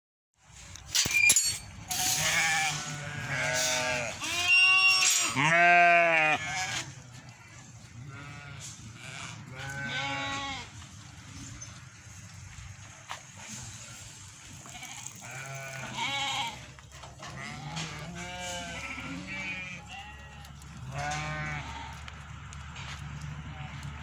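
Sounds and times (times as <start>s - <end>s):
goats bleating: 2.0s - 10.8s, 13.6s - 22.2s.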